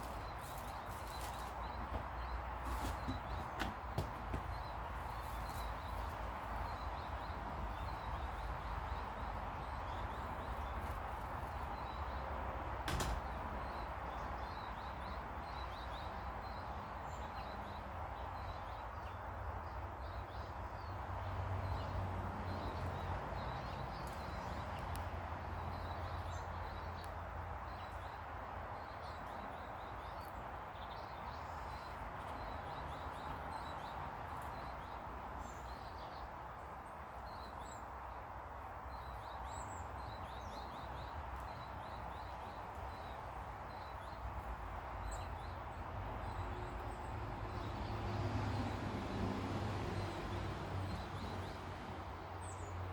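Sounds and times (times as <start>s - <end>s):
small birds chirping: 0.0s - 52.9s
sharp knock: 12.9s - 13.3s.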